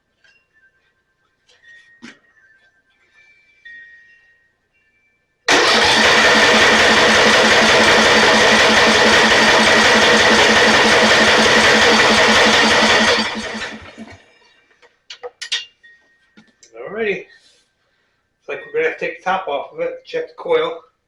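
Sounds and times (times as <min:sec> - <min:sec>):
electric starter cranking engine: 0:05.5 - 0:14.2.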